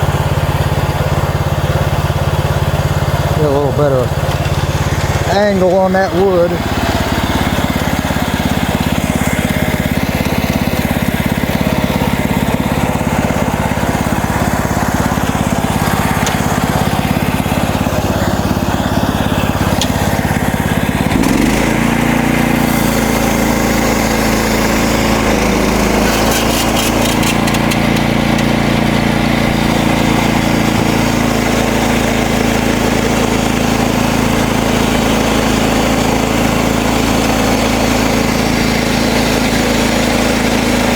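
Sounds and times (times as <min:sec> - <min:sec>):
bandsaw blade sawing log: 0:00.0 - 0:40.9
gasoline engine running: 0:00.0 - 0:40.9.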